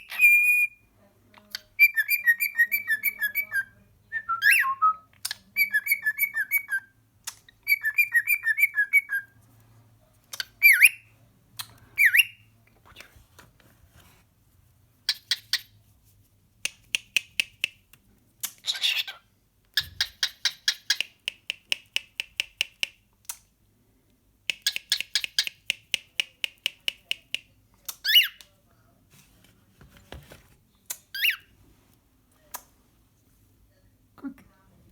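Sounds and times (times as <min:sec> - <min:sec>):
cockatiel mimicking clicks: 0:19.8 - 0:23.4.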